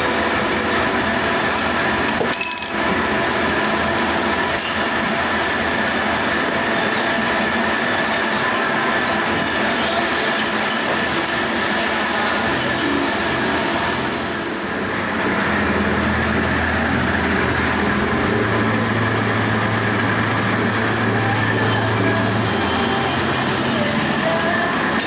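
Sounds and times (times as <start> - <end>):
metal lathe running: 0.0 - 25.0
metallic clink: 2.1 - 2.9.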